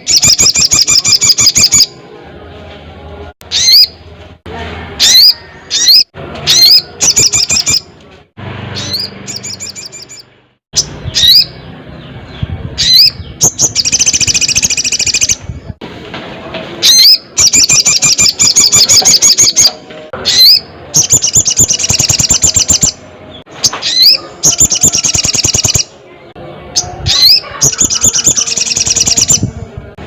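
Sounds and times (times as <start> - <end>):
bird singing swooping notes: 8.7 - 15.7.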